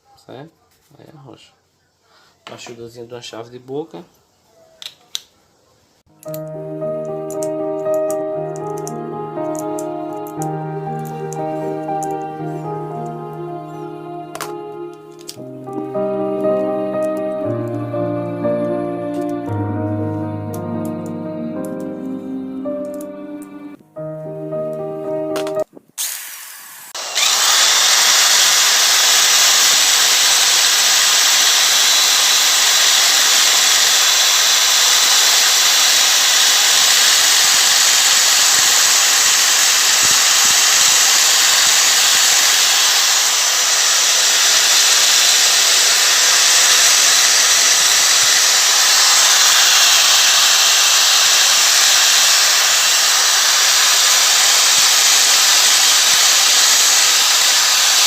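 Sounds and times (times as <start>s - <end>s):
drill sanding metal wheel: 26.0s - 58.0s.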